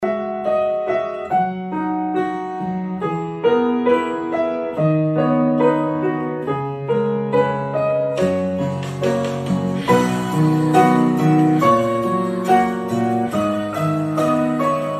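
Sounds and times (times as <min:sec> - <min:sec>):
slow gentle piano music: 0:00.0 - 0:14.9.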